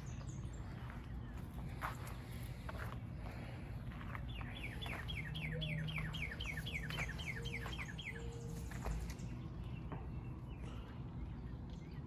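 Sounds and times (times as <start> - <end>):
songbird singing down-slurred notes: 4.1 - 12.0.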